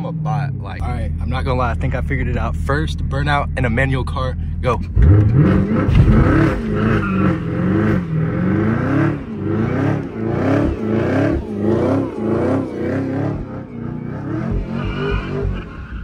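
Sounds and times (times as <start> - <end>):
car engine revving in burnout: 4.9 - 16.0.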